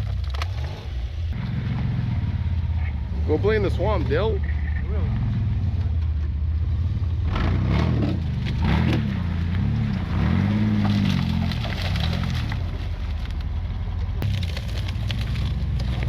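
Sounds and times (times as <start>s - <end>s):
cracking and snapping: 0.0s - 0.8s, 9.9s - 16.0s
truck engine revving: 0.0s - 16.0s.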